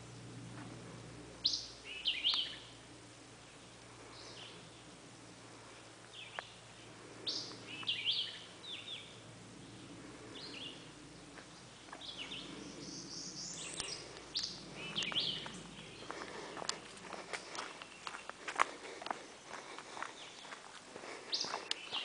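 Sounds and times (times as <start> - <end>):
birds chirping: 0.0 - 22.0
footsteps on a dirt trail: 11.3 - 12.6, 13.6 - 22.0.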